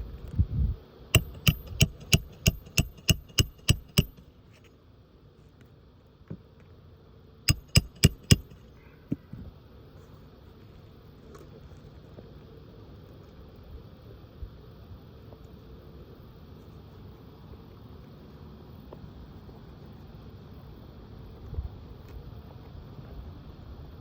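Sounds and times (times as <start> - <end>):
hammer striking roofing nails: 1.2 - 4.2, 7.5 - 8.6.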